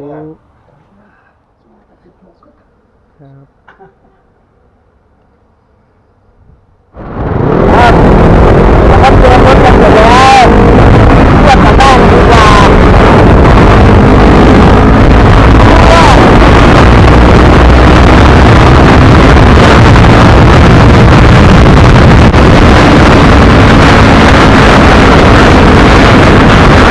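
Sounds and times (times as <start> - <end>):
vehicle engine running: 4.4 - 26.9
wind buffeting microphone: 6.4 - 26.9.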